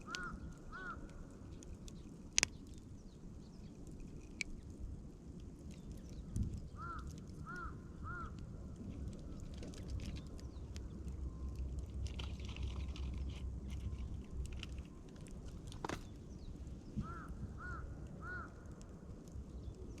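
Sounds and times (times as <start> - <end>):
bird calling: 0.0 - 1.2, 6.8 - 8.4, 15.8 - 18.6
campfire crackling: 0.0 - 20.0.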